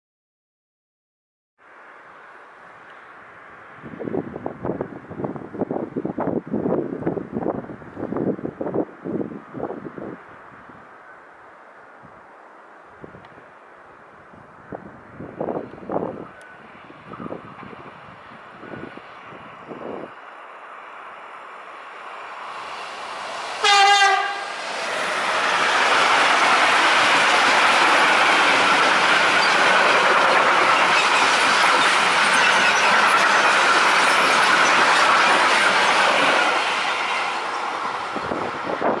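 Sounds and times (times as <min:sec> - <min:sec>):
freight train wheels on rail: 0:14.7 - 0:39.0
locomotive horn blast: 0:23.6 - 0:24.6.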